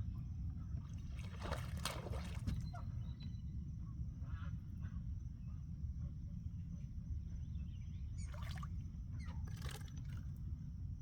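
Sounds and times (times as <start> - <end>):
water splashes: 1.2 - 2.5.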